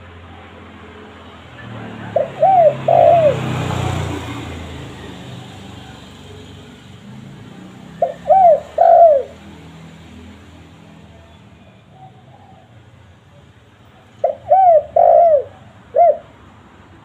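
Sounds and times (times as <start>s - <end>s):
dove cooing: 1.6s - 6.0s, 7.9s - 9.5s, 11.9s - 13.0s, 14.0s - 16.5s.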